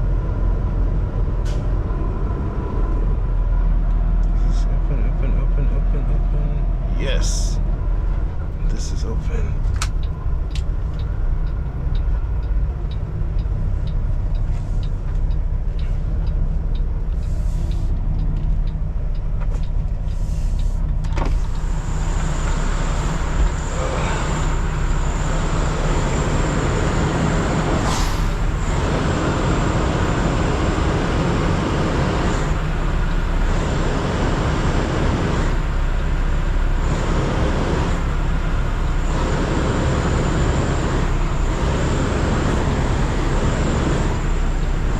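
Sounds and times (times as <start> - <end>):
diesel truck engine running: 0.0 - 44.9
regular ticking: 5.1 - 26.2.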